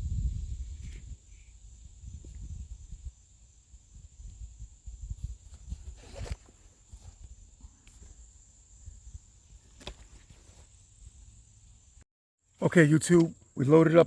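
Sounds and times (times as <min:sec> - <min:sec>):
wind rumbling on microphone: 0:00.0 - 0:10.4.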